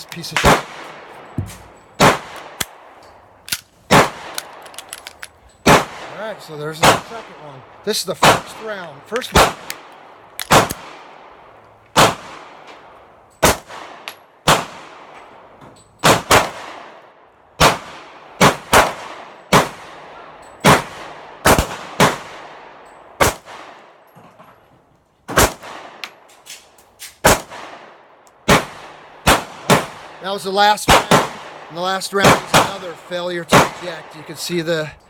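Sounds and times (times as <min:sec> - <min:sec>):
pistol shots with echo: 0:00.2 - 0:02.9, 0:03.9 - 0:04.6, 0:05.6 - 0:06.1, 0:06.7 - 0:11.1, 0:12.0 - 0:12.6, 0:13.4 - 0:15.1, 0:16.0 - 0:17.0, 0:17.6 - 0:22.6, 0:28.5 - 0:30.2, 0:30.8 - 0:34.3.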